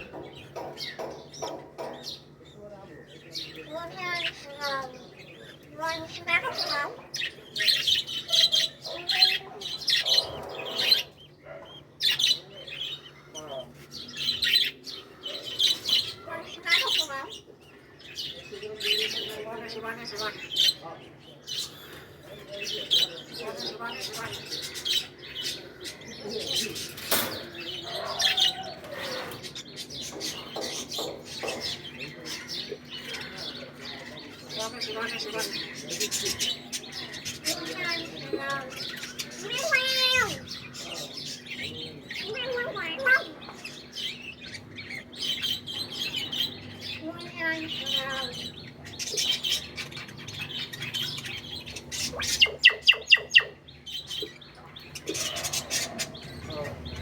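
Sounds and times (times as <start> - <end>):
parrots chirping: 3.6 - 21.0, 22.7 - 57.0.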